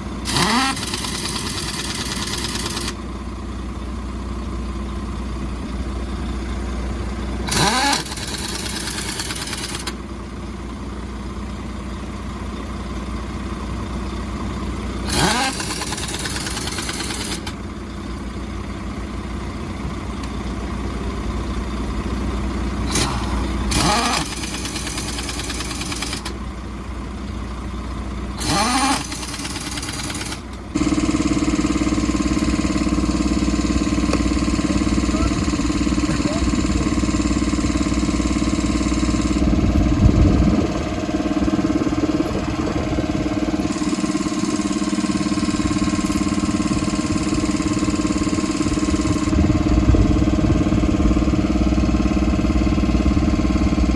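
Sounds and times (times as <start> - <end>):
engine running: 0.0 - 53.9.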